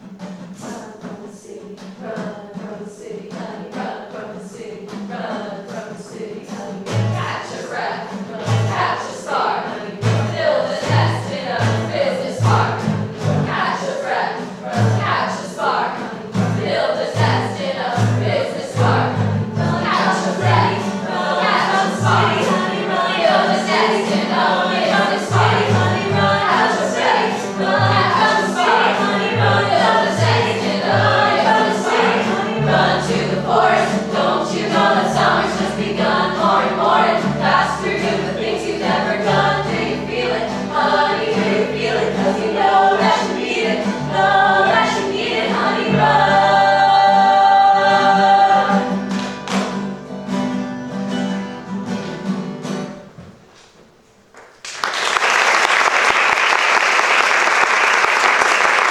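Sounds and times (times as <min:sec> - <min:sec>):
group of voices singing: 0:00.1 - 0:49.5
bass line: 0:16.4 - 0:48.2.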